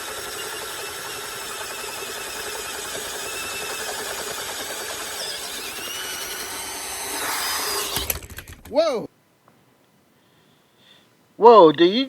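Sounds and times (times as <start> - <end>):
high-pitched squeal from drilling: 0.0 - 8.2
power drill at low speed: 0.0 - 8.8.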